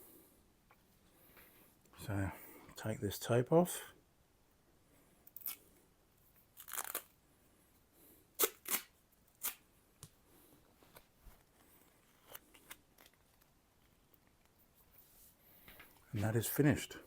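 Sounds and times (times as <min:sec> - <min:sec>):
tape peeling off blade: 0:08.4 - 0:09.6.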